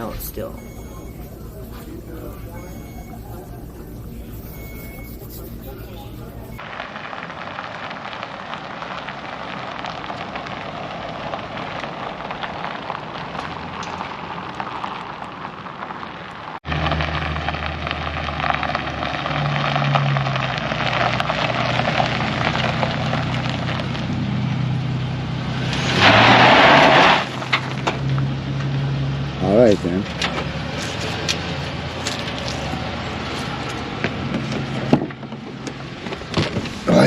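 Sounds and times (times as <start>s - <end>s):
vehicle engine running: 0.0s - 6.7s, 27.3s - 37.0s
crackly hiss: 0.2s - 24.2s, 25.4s - 28.3s.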